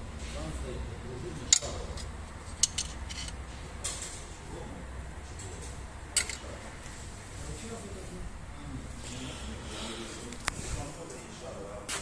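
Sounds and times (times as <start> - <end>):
metal tools clinking: 1.5 - 3.4, 6.2 - 6.5.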